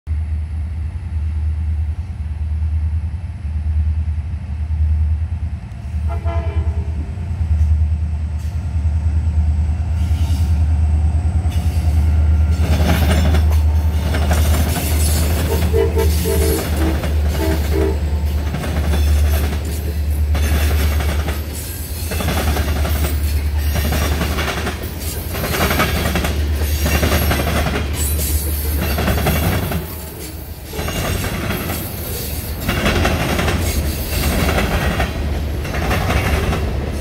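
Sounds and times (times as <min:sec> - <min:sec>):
train wheels over rail crossing: 0:00.1 - 0:37.0
train horn blasts: 0:05.9 - 0:07.2, 0:15.0 - 0:19.2.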